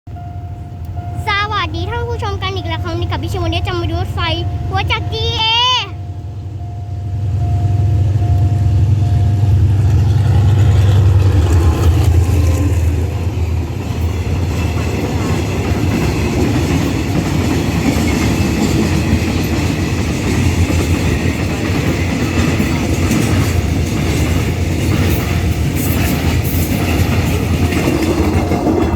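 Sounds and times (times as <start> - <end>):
locomotive engine rumble: 0.1 - 28.9
train cars rushing past: 0.1 - 28.9
wheels clacking over rail joints: 8.1 - 28.9.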